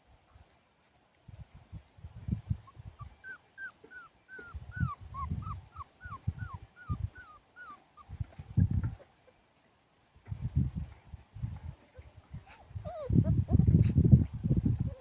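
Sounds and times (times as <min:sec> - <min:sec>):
puppy whimpering: 0:02.7 - 0:09.4, 0:11.9 - 0:14.0, 0:14.8 - 0:15.0.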